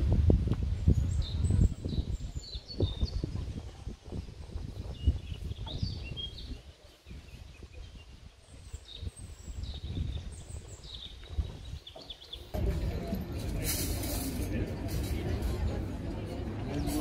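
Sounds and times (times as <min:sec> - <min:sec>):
small birds chirping: 0:00.8 - 0:12.6.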